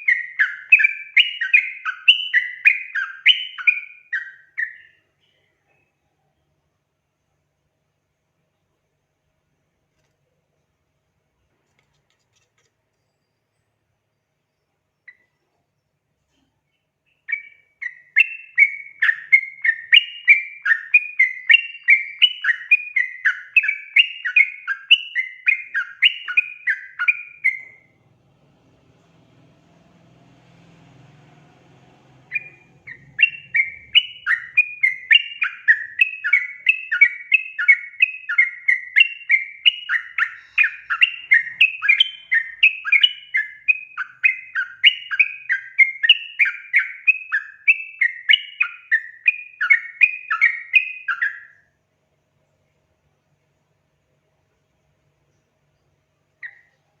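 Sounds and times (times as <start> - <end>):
bird chattering song: 0.0 - 6.0, 16.7 - 28.0, 28.6 - 51.6, 55.2 - 57.0.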